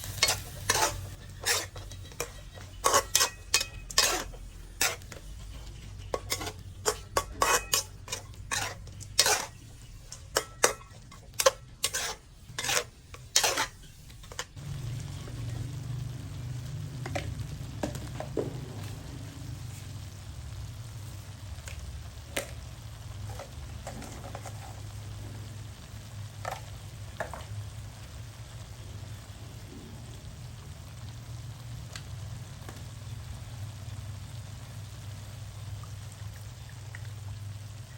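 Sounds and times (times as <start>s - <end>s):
utensil scraping cookware: 0.0s - 14.6s
food sizzling in a hot pan: 0.0s - 37.9s.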